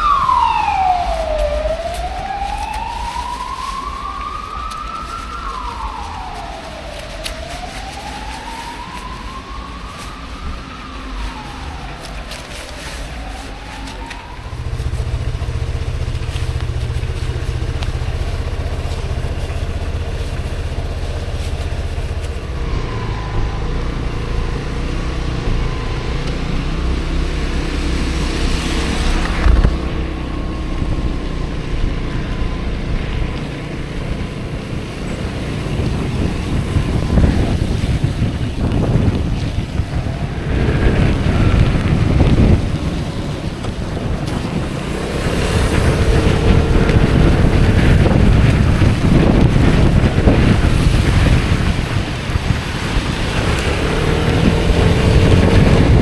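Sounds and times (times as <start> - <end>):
road noise: 0.0 - 56.0
wind noise: 0.0 - 56.0
scooter engine running: 11.4 - 56.0.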